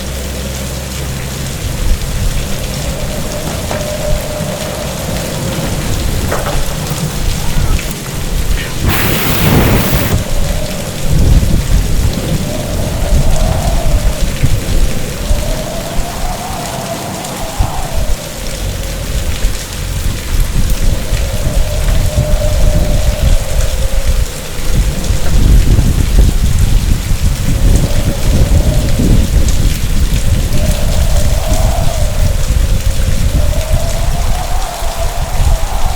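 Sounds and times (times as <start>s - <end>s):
low rumble: 0.0s - 16.3s
heavy rain: 0.0s - 35.9s
thunder rumbling: 0.0s - 35.9s
thunder crack: 2.2s - 16.2s.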